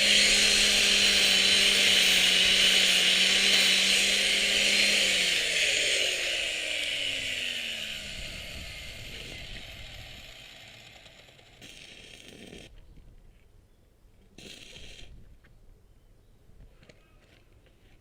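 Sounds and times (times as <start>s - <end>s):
power tool motor spinning down: 0.0s - 12.7s.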